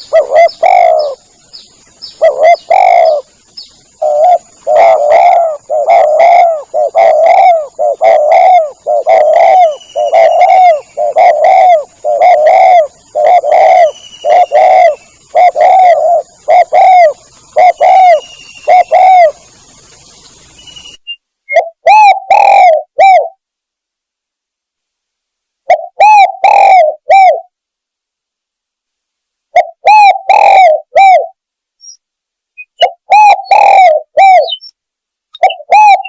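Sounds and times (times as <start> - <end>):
dove cooing: 0.0 - 1.2, 2.1 - 19.5, 21.5 - 23.4, 25.7 - 27.5, 29.5 - 31.4, 32.7 - 34.7, 35.4 - 36.0
faint high bird chirps: 0.0 - 23.4, 29.6 - 36.0.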